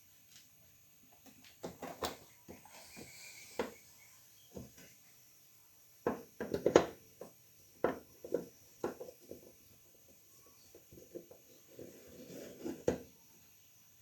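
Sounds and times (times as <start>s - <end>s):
hard objects knocking and clattering: 1.6s - 3.8s, 6.0s - 9.7s.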